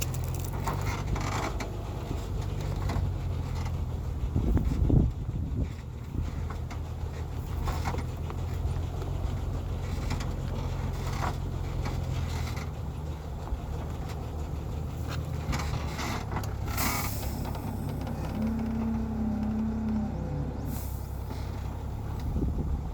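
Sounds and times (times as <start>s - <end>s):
scraping and knocking: 0.0s - 3.9s
truck engine running: 0.0s - 22.9s.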